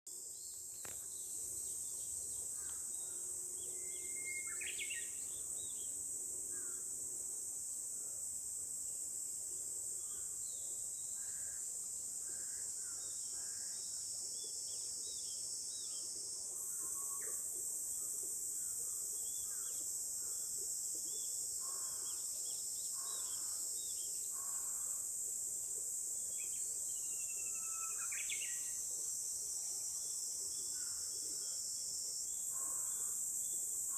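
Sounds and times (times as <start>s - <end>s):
high-pitched insect chorus: 0.3s - 33.9s
bush warbler whistling song: 3.6s - 5.9s.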